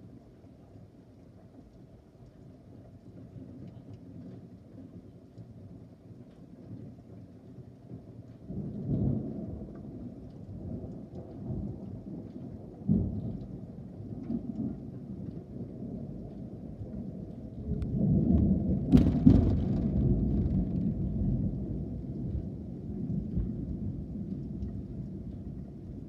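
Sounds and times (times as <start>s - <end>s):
rain falling: 0.0s - 26.0s
thunder rumbling: 8.4s - 26.0s
sharp thunder crack: 18.2s - 21.6s.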